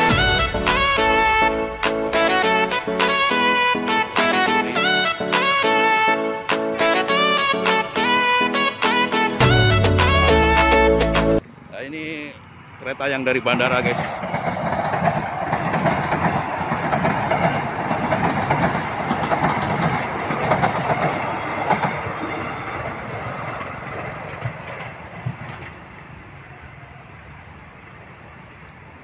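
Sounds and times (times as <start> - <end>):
train wheels rumbling on rails: 12.8 - 29.0.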